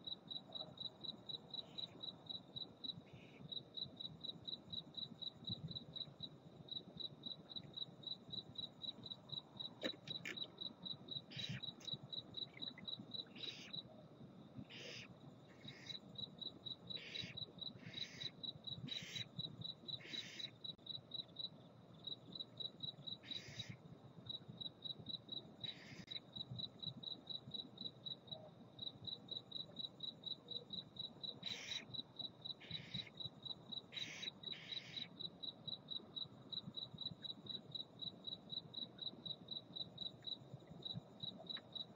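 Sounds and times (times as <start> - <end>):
cricket chirping: 0.0 - 41.9
owls hissing calls: 31.5 - 31.8, 34.0 - 35.0.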